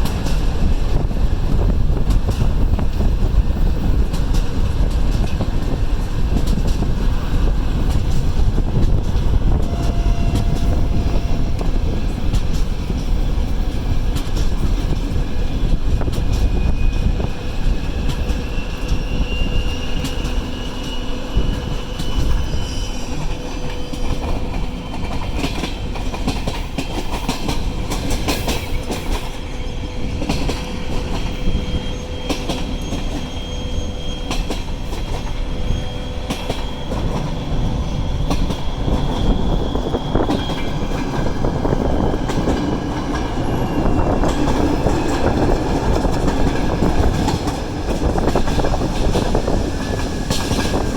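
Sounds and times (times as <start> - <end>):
train wheels clicking over rail joints: 0.0 - 50.9
high wheel squeal: 8.9 - 13.4, 15.5 - 25.4, 28.6 - 50.9.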